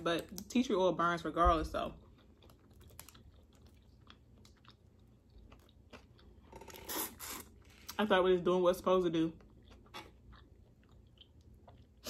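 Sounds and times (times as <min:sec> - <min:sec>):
person chewing food: 0:02.0 - 0:08.0, 0:09.4 - 0:12.0.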